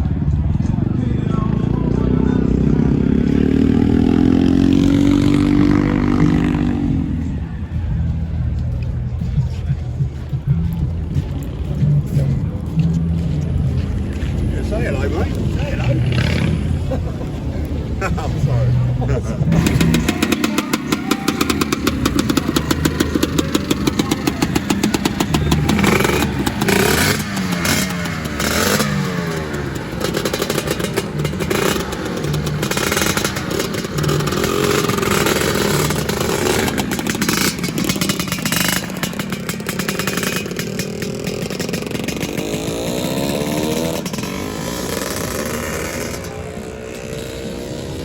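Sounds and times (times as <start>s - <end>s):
scooter engines revving: 0.0s - 48.0s.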